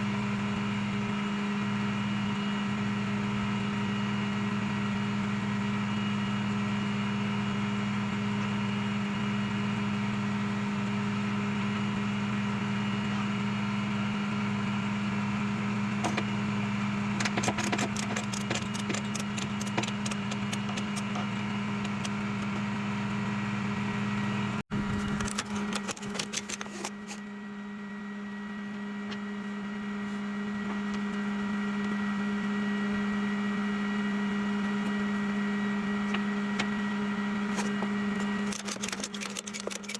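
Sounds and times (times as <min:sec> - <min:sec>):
rattling clicks: 0:17.2 - 0:22.5, 0:24.9 - 0:27.2, 0:38.3 - 0:39.9.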